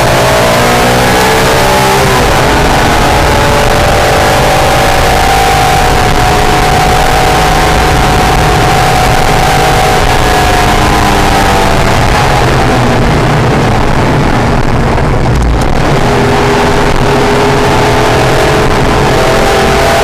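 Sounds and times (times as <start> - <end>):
car engine at speed: 0.0 - 20.0
wind and road noise: 0.0 - 20.0.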